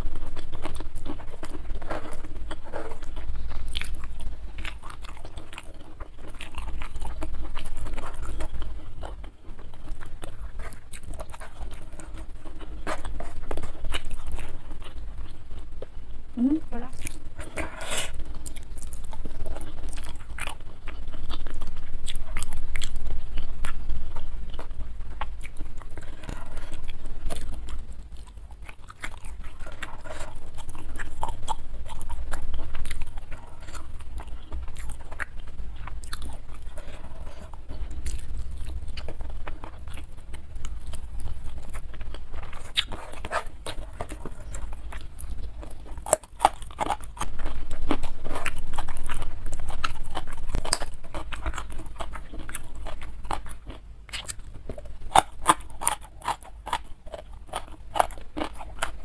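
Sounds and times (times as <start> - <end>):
person chewing and eating: 0.0 - 59.0.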